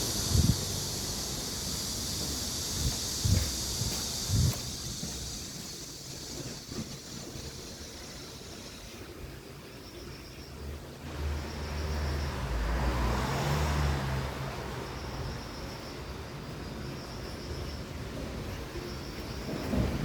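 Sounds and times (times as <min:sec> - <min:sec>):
vehicle passing with low rumble: 0:11.0 - 0:16.9.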